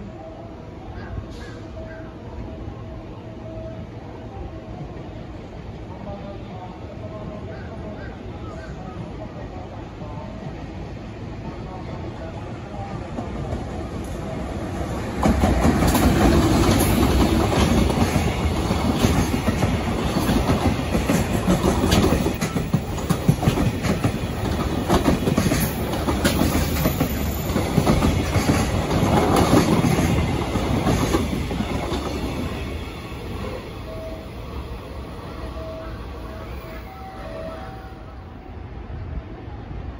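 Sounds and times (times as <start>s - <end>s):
freight train passing: 0.0s - 39.9s.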